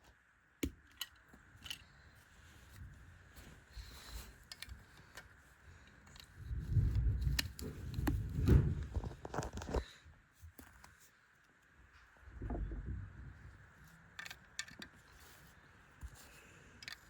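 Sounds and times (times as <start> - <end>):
plastic pieces clicking and rustling: 4.2 - 5.3, 14.1 - 15.4, 16.8 - 17.0.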